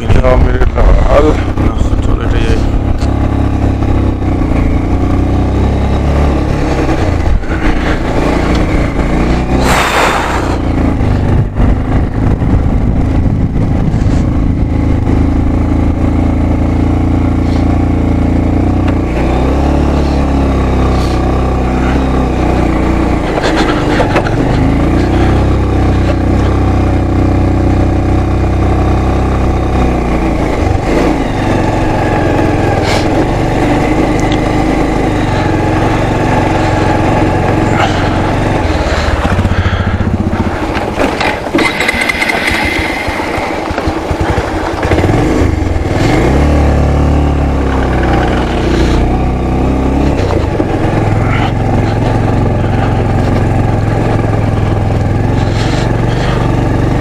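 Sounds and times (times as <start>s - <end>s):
motorcycle engine running: 0.0s - 57.0s
rushing hiss: 9.6s - 10.7s, 41.8s - 44.0s.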